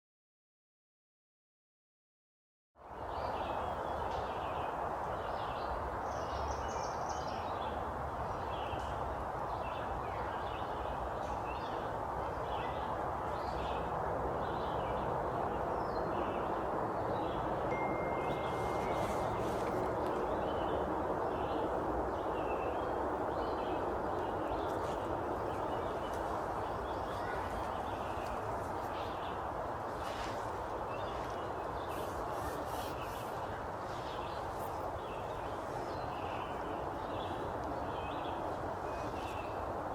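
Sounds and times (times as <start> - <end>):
birds chirping: 3.1 - 39.9
steady rushing noise: 7.4 - 39.9.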